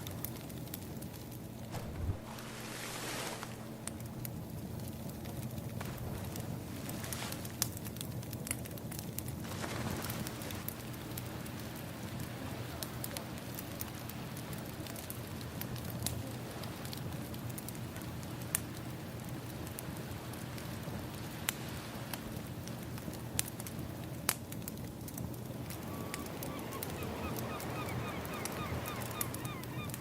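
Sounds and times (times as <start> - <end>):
firewood crackling and popping: 0.0 - 30.0
ocean waves: 1.7 - 4.0, 25.4 - 30.0.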